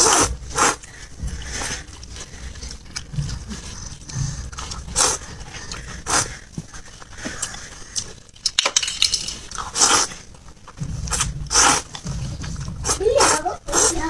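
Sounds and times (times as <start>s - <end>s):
loud noodle slurps: 0.0s - 1.8s, 4.6s - 6.4s, 9.6s - 10.3s, 11.0s - 14.0s
chewing and mouth sounds: 0.0s - 8.6s, 9.3s - 14.0s.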